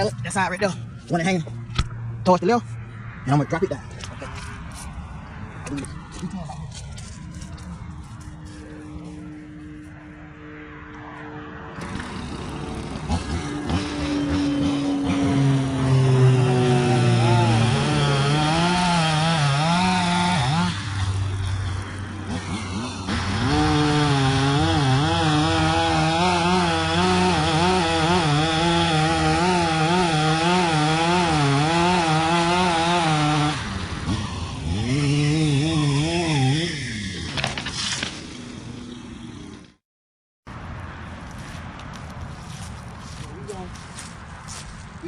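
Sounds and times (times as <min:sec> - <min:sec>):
chainsaw cutting wood: 0:11.8 - 0:39.8.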